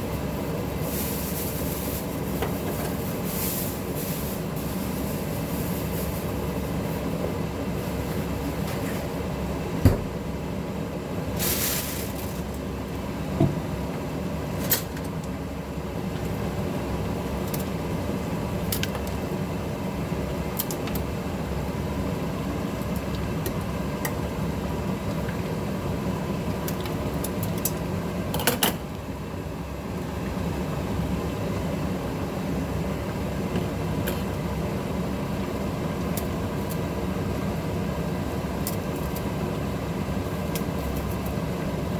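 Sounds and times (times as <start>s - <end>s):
mechanical hum: 0.0s - 41.9s.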